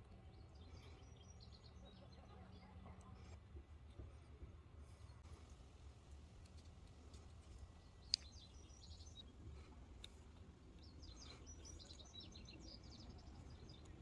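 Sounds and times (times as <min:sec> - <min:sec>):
faint bird chirps: 0:10.8 - 0:14.0.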